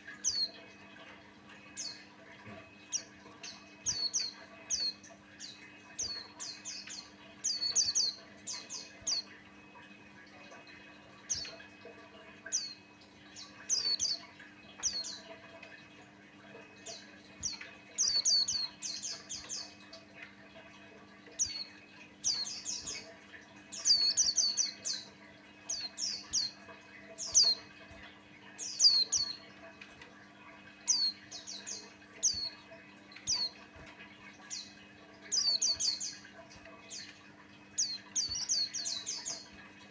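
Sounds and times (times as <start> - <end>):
bird chirping: 0.0 - 0.7, 2.7 - 9.7, 12.4 - 15.3, 16.8 - 19.8, 21.4 - 29.5, 30.8 - 39.6
faint steady hum: 0.0 - 39.9.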